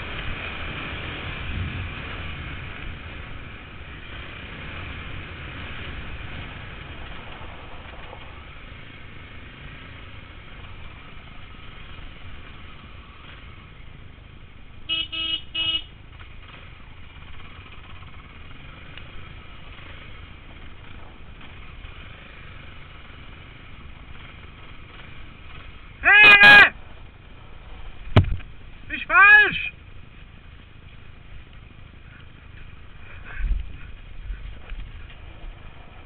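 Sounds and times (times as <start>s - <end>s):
short horn beeps: 14.9s - 15.9s.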